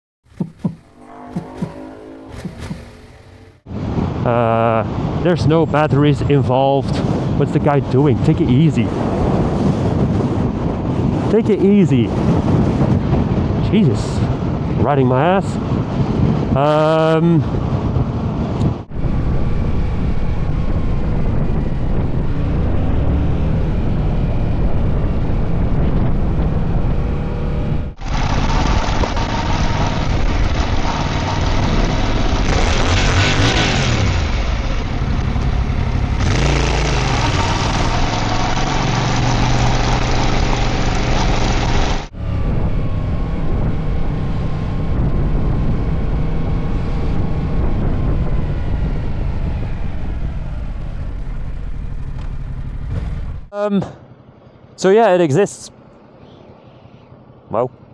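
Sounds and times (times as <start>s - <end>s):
motorcycle engine accelerating: 0.2s - 3.9s, 17.6s - 53.5s
wind and road noise: 0.2s - 57.9s.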